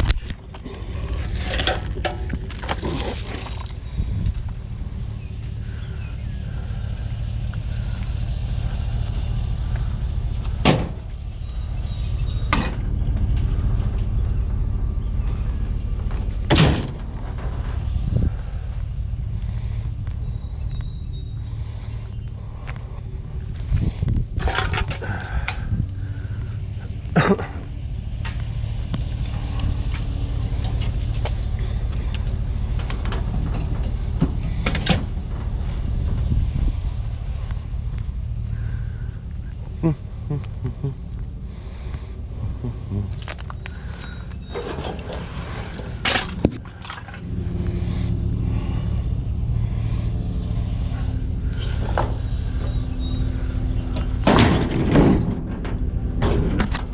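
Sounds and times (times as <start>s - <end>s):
metal clanks: 0.0s - 3.2s, 53.8s - 56.9s
vehicle engine rumbling: 0.0s - 56.9s.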